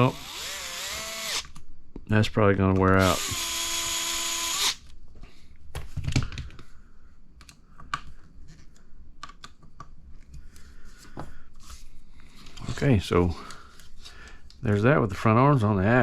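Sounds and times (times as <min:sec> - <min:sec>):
cordless power driver running: 0:00.0 - 0:01.5, 0:03.0 - 0:04.8.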